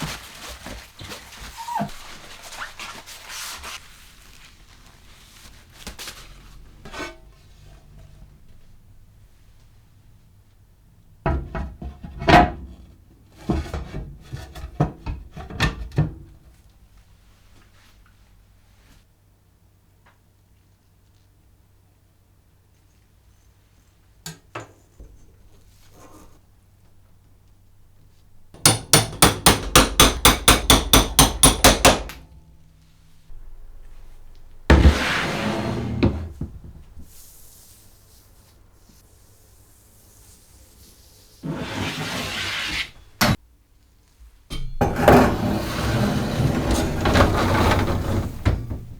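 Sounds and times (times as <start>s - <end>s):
sharp wooden knocks: 28.6s - 32.2s
hammer tapping metal: 28.6s - 32.3s, 44.5s - 45.4s.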